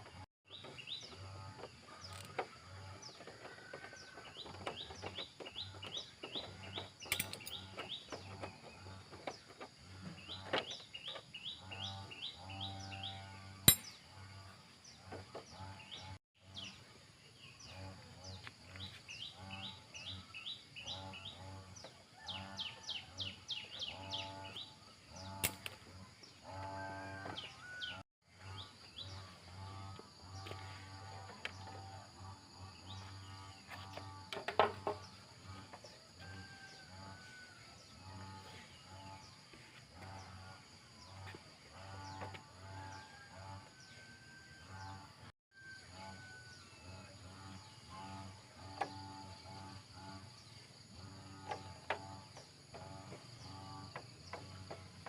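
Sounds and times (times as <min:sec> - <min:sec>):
birds chirping: 0:00.0 - 0:44.0.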